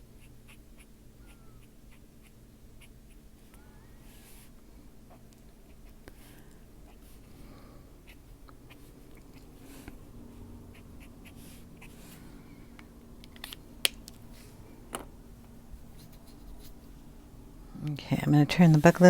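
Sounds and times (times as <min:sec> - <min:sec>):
low room hum: 0:00.0 - 0:19.0
colouring scratching on paper: 0:08.0 - 0:12.2, 0:15.8 - 0:17.0.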